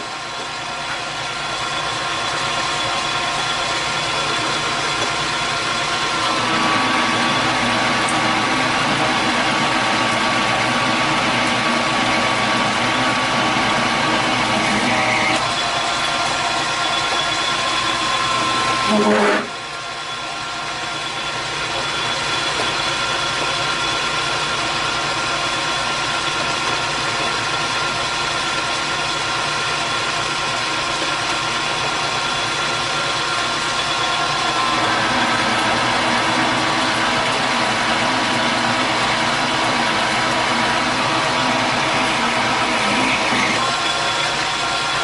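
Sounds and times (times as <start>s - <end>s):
metal lathe cutting: 0.0s - 45.0s.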